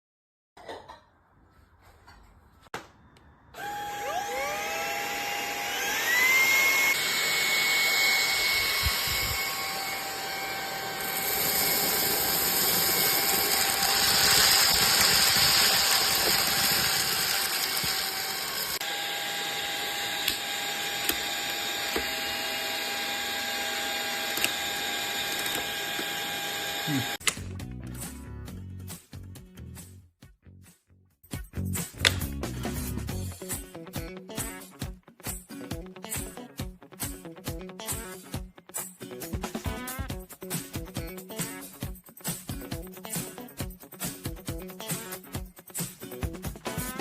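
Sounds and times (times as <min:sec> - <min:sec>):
handheld vacuum cleaner whine: 0:03.6 - 0:27.2.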